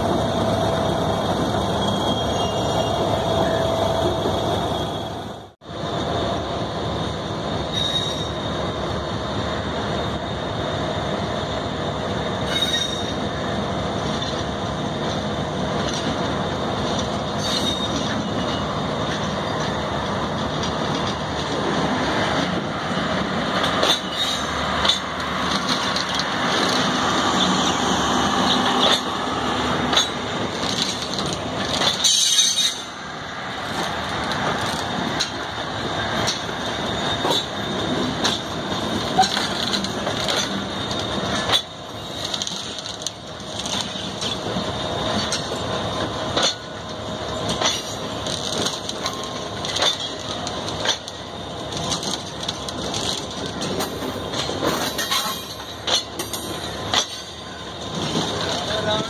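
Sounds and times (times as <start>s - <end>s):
train coaches rumbling: 0.0s - 59.0s
wheel squeals: 1.6s - 5.2s, 7.7s - 8.5s, 17.3s - 18.8s, 36.3s - 38.4s
wheels clacking over rail joints: 14.0s - 59.0s.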